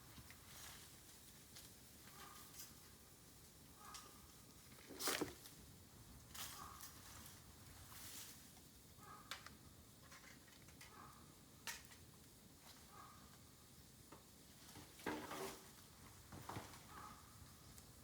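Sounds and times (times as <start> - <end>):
bamboo fire crackling and popping: 9.3 - 12.6.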